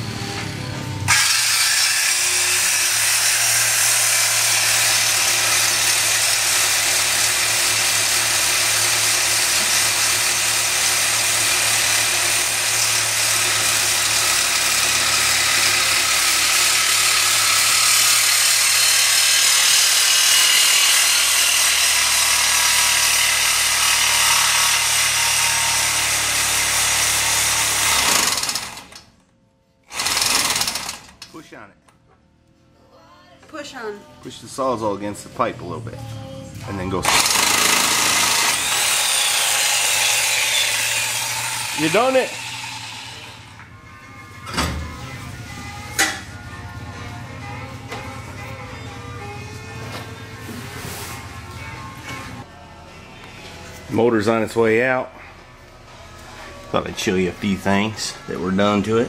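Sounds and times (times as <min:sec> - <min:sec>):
reciprocating saw cutting metal pipe: 0:01.1 - 0:29.0, 0:37.0 - 0:43.6.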